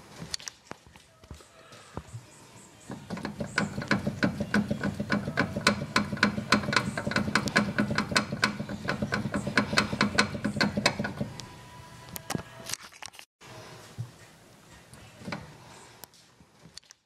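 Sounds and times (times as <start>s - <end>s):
strut mount rattling clicks: 3.1s - 11.5s.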